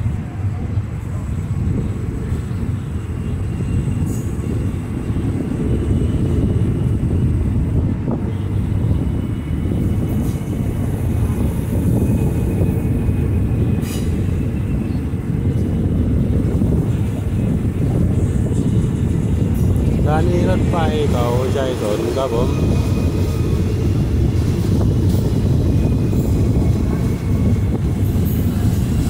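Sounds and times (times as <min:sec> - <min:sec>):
train rumbling on rails: 0:00.0 - 0:29.0.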